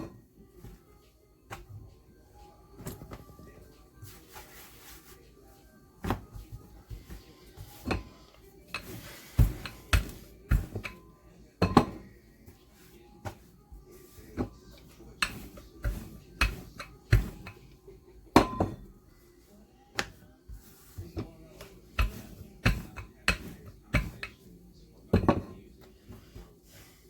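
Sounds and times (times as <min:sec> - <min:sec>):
kitchen utensils and dishes clattering: 0:00.0 - 0:00.3, 0:06.1 - 0:12.1, 0:14.4 - 0:18.9, 0:20.6 - 0:24.4, 0:25.1 - 0:27.0.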